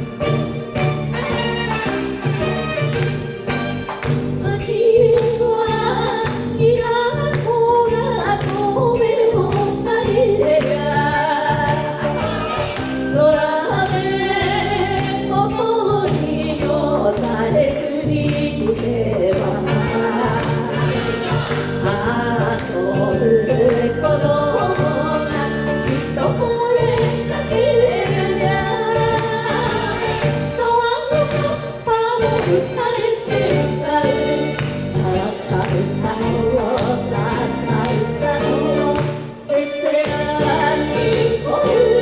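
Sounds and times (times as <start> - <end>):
band with horns: 0.0 - 4.4, 11.9 - 13.4, 19.5 - 22.5, 28.6 - 35.2
two women singing in duet: 4.0 - 42.0.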